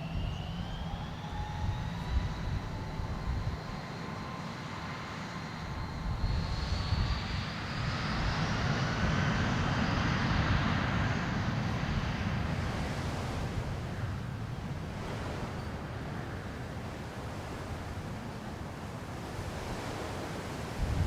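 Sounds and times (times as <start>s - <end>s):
jet engines at takeoff power: 0.0s - 21.0s.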